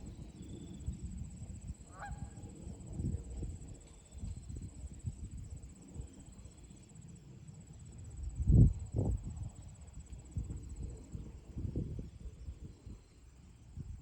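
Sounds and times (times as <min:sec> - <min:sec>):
gusty wind: 0:08.0 - 0:14.0.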